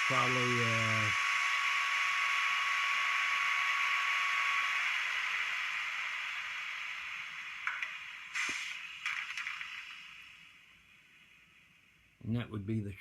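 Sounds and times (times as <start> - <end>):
hiss from small speaker: 0.0 - 13.0
sharp clicks: 7.6 - 10.2.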